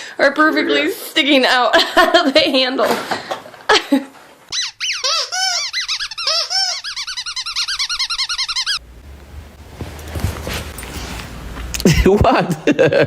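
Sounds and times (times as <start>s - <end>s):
squeaky dog toy squeaking: 4.5s - 8.8s.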